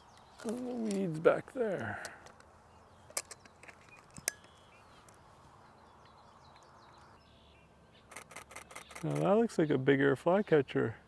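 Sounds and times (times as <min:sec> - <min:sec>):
sharp clicks: 0:08.1 - 0:09.3.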